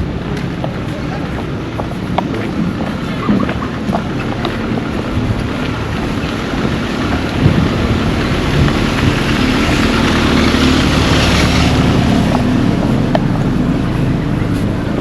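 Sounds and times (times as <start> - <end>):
vehicle engine passing by: 3.0 - 15.0.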